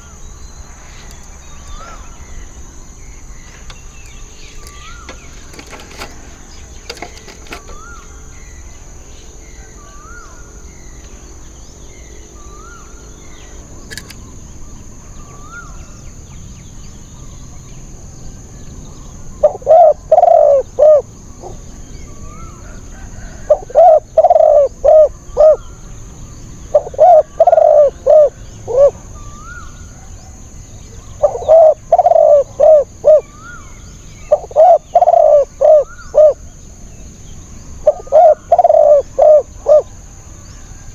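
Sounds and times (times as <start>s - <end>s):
small bird chirping: 0.0s - 22.8s, 23.6s - 40.0s
high insect whine: 0.0s - 40.9s
doves cooing: 1.6s - 8.3s, 19.3s - 36.4s, 37.7s - 40.9s.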